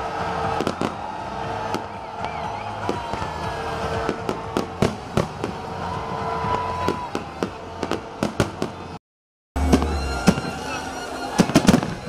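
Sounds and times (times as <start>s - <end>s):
fireworks bangs and crackles: 0.0s - 9.0s, 9.6s - 12.0s
rising whistling tone: 9.6s - 12.0s.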